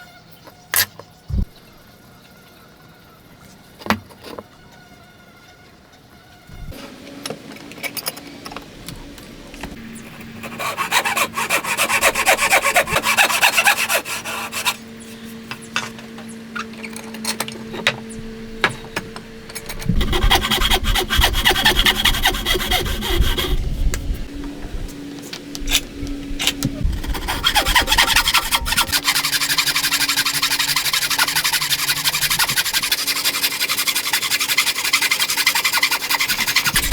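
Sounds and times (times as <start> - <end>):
hand tool scraping wood: 10.1 - 15.7, 19.6 - 24.0, 25.7 - 36.9.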